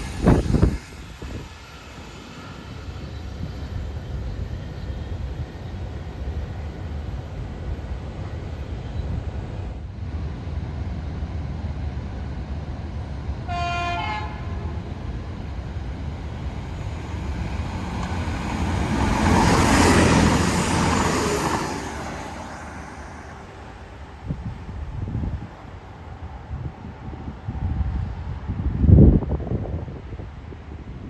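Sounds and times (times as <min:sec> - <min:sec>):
train passing at speed: 0:00.0 - 0:31.0
train horn: 0:13.4 - 0:15.1.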